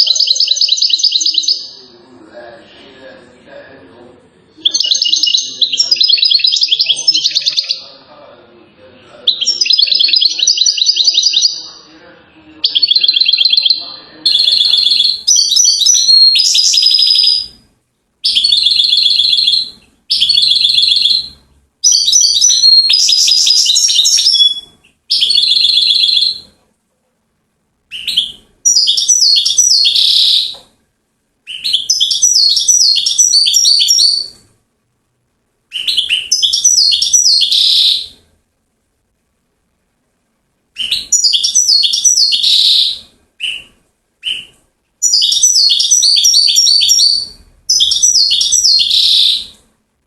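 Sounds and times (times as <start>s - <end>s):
goldfinch twittering song: 40.8s - 49.4s.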